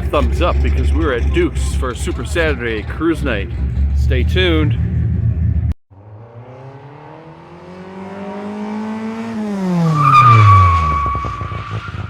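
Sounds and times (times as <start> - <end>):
car engine passing fast: 0.0 - 12.0
high tyre squeal: 9.6 - 12.0.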